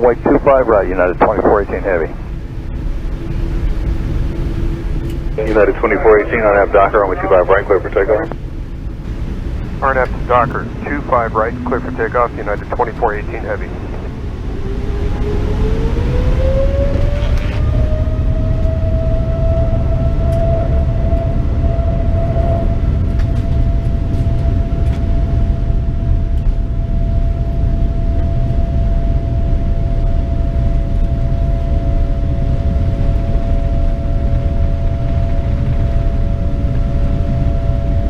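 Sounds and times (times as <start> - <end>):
takeoff roll rumble: 0.0 - 23.6
jet engine whine: 0.0 - 38.0.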